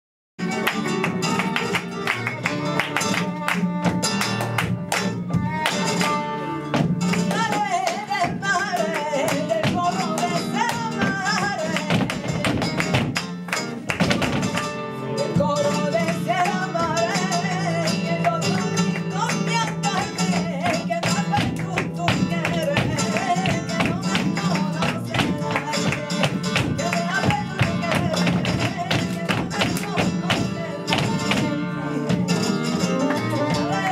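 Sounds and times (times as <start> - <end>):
flamenco guitar: 0.4 - 33.9
person singing: 14.0 - 33.9.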